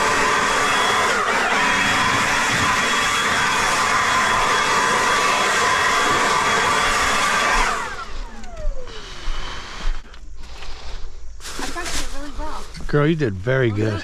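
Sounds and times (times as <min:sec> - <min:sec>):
fan motor whining: 0:00.0 - 0:10.2.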